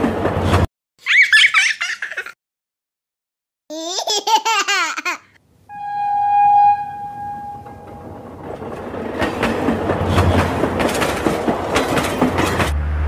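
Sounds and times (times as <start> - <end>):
train wheels clattering on rails: 0.0 - 0.7, 7.7 - 12.8
train horn: 5.7 - 8.3.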